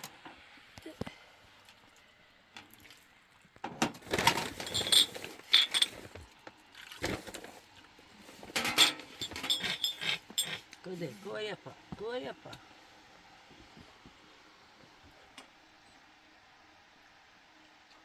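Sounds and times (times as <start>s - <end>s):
hard objects clinking: 4.1s - 6.1s, 8.5s - 10.7s.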